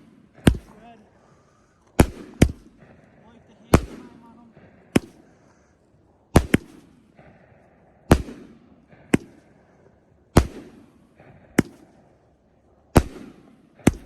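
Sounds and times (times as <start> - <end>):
fireworks bangs with rumble: 0.0 - 1.0, 2.0 - 5.4, 6.3 - 9.7, 10.3 - 12.3, 12.9 - 14.0.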